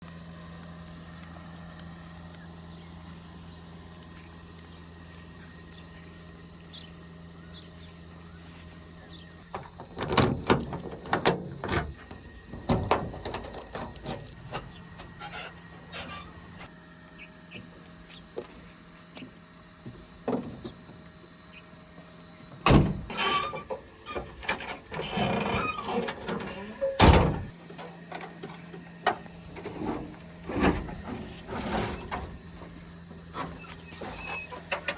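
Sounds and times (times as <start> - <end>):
high insect buzz: 0.2 - 27.6.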